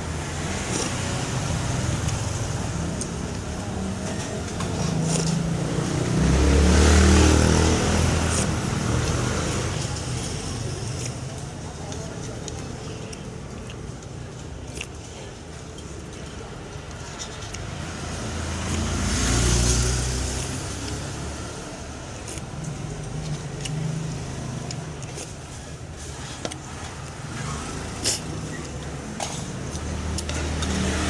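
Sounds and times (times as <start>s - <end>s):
traffic noise: 0.0s - 31.0s
vehicle passing by: 4.6s - 10.4s, 17.7s - 22.4s, 26.8s - 31.0s.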